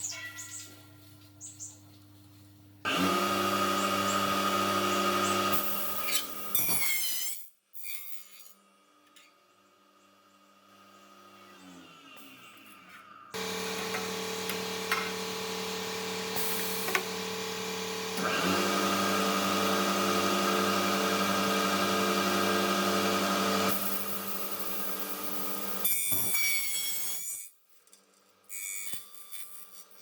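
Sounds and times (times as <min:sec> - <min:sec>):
cutting saw motor humming: 0:02.9 - 0:06.5, 0:13.4 - 0:25.8.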